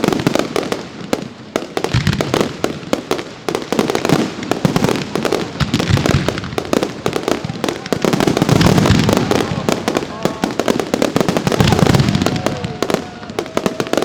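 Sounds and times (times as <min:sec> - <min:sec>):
deep fireworks booms: 0:00.0 - 0:14.0
fireworks bangs and crackling: 0:00.0 - 0:14.0.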